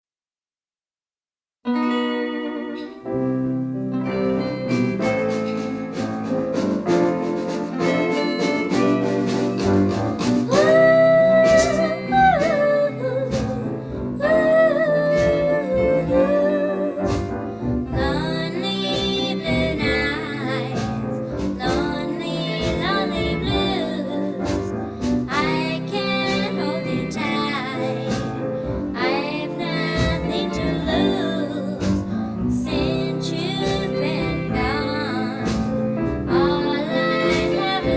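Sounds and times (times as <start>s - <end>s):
guitar and backing band: 1.7s - 37.9s
woman singing pop ballad: 10.5s - 37.9s.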